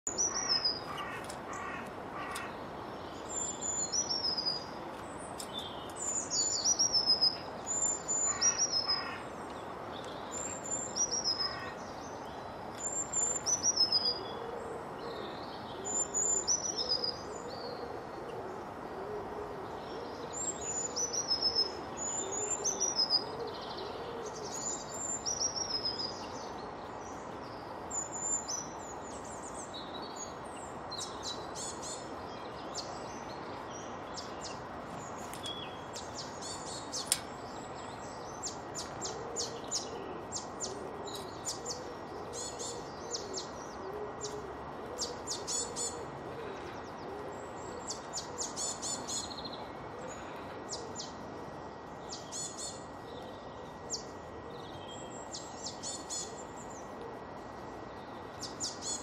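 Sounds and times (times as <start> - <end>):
steady background noise: 0.1 - 59.0
low cooing: 39.0 - 48.5.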